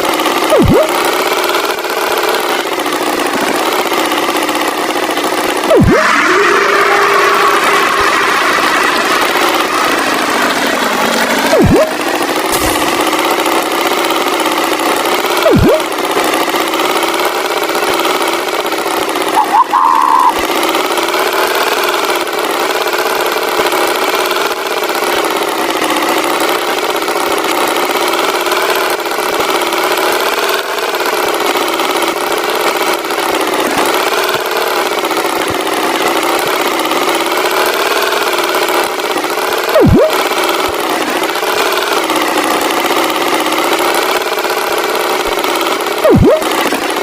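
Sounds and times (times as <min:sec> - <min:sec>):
tractor engine running: 0:00.0 - 0:47.0
short higher tone: 0:00.5 - 0:01.0, 0:11.5 - 0:12.0, 0:15.4 - 0:15.9, 0:39.8 - 0:40.2, 0:46.1 - 0:46.5.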